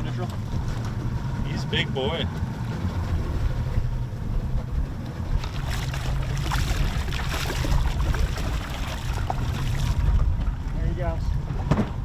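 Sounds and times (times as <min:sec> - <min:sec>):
wind buffeting microphone: 0:00.4 - 0:12.0
water splashing and hissing: 0:05.3 - 0:10.1.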